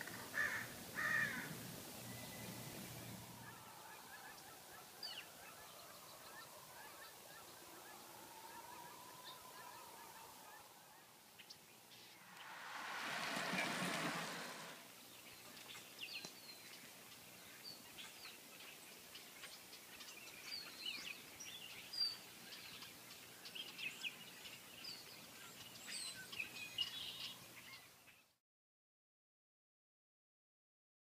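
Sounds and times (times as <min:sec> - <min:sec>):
faint outdoor hiss: 0:00.0 - 0:28.4
small birds chirping: 0:00.0 - 0:28.4
brief rushing swell: 0:12.0 - 0:15.0.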